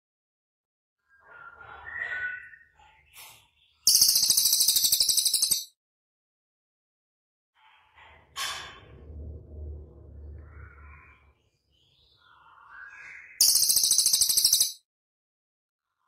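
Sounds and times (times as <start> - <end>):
songbirds chirping and trilling: 1.0 - 5.7, 10.2 - 14.8
low rumble: 8.8 - 11.2.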